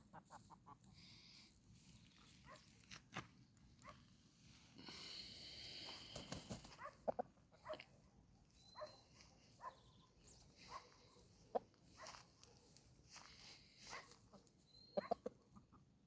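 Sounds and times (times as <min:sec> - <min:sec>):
chickens clucking: 0:00.0 - 0:01.0, 0:05.8 - 0:08.0, 0:09.4 - 0:16.0.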